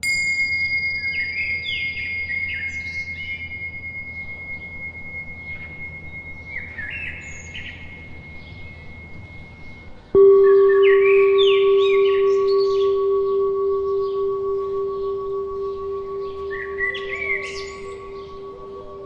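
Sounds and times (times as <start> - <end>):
high bell ringing: 0.0 - 19.0
low steady hum: 0.0 - 19.0
birds chirping: 1.0 - 19.0.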